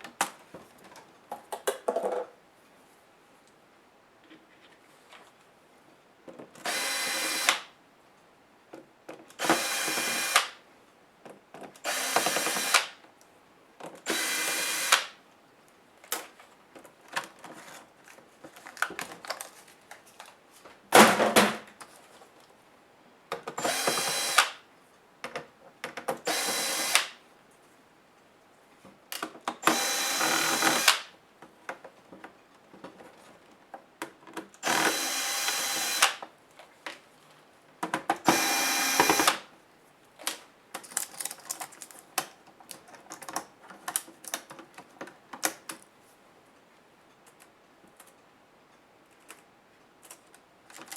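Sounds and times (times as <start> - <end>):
electric screwdriver whirring: 6.6 - 7.7, 9.4 - 10.6, 11.9 - 12.9, 14.1 - 15.1, 23.6 - 24.6, 26.3 - 27.2, 29.6 - 31.1, 34.6 - 36.2, 38.2 - 39.4
light clicks and handling of parts: 15.6 - 20.8, 40.0 - 46.0, 46.6 - 50.9.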